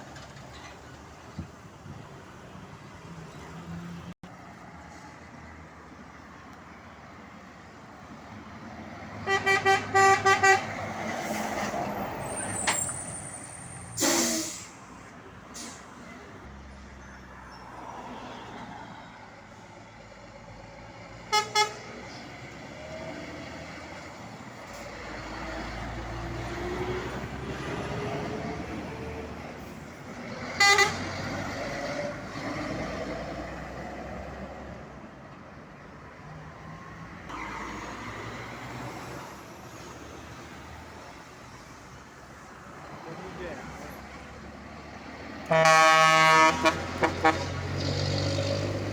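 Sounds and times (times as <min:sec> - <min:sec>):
truck horn toots: 0:09.2 - 0:10.8, 0:21.3 - 0:22.0, 0:30.6 - 0:31.1, 0:45.5 - 0:47.7.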